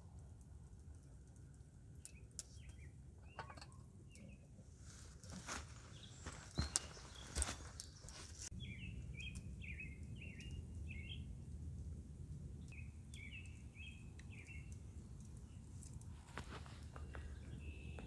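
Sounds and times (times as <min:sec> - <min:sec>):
small bird calling: 0:05.4 - 0:11.2
rustling and light knocks: 0:16.2 - 0:17.4.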